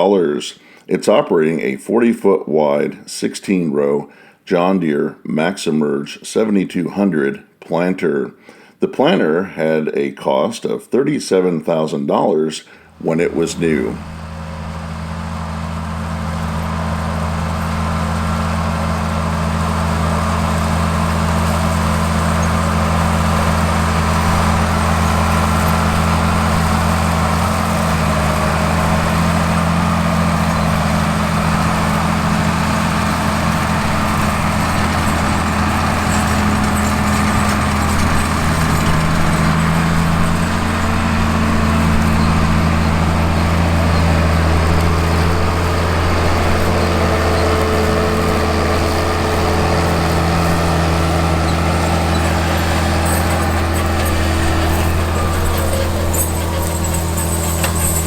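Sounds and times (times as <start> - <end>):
diesel engine running: 12.8 - 58.0.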